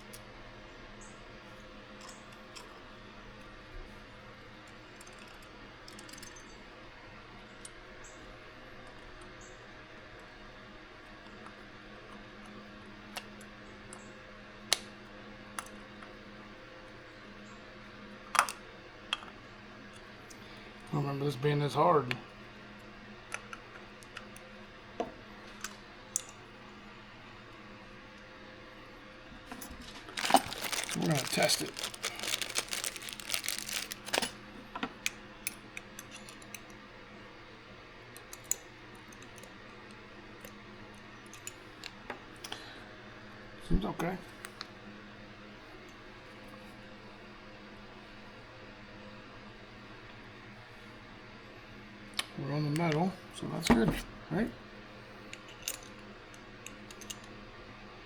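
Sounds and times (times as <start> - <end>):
faint hum: 0.0 - 58.0.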